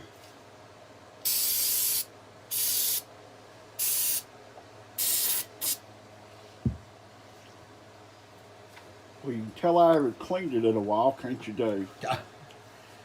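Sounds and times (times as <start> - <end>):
aerosol can spraying: 1.3 - 3.0, 3.8 - 4.2, 5.0 - 5.8
dull thump: 6.6 - 6.9.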